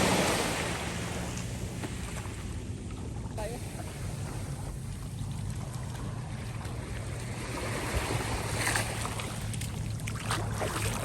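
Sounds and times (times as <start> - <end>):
sea waves washing on beach: 0.0 - 11.0.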